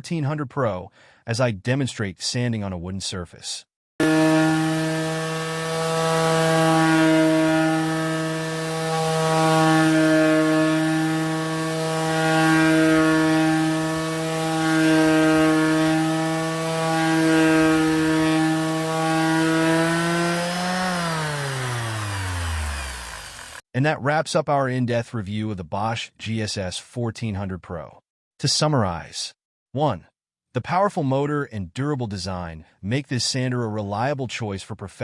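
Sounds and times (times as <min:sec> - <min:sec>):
orbital sander on wood: 0:04.0 - 0:23.6.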